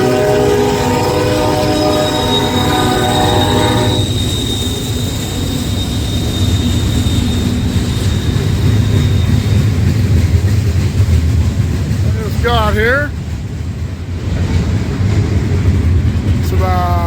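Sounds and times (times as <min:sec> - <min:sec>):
locomotive air horn: 0:00.0 - 0:04.8
train rumbling past: 0:00.0 - 0:17.0
high-pitched whine: 0:00.9 - 0:09.7.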